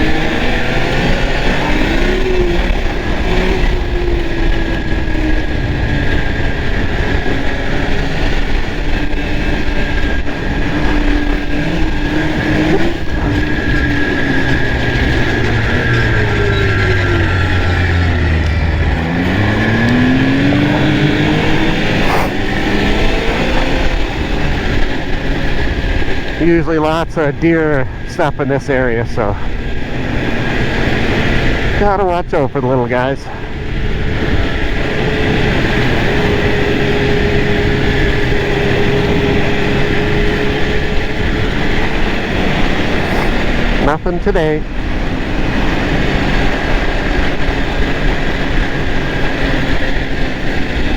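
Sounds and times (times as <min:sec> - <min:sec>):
wind noise on microphone: 0:00.0 - 0:28.2, 0:33.2 - 0:44.0
snowmobile engine running: 0:00.0 - 0:50.9.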